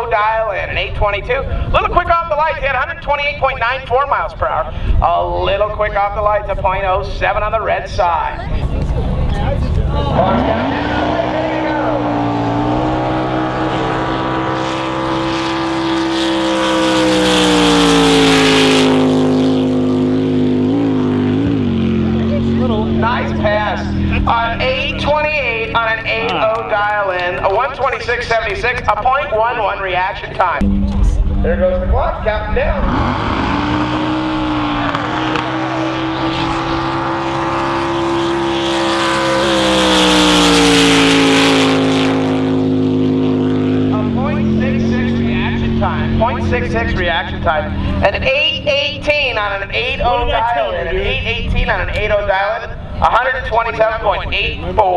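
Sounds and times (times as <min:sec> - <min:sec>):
boat engine running hard: 0:08.4 - 0:26.7, 0:30.6 - 0:52.1.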